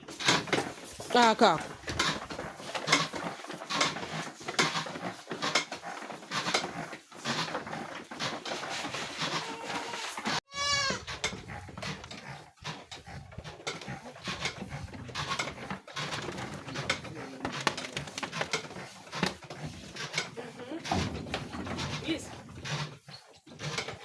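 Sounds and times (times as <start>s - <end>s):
young goats bleating: 9.4s - 11.0s.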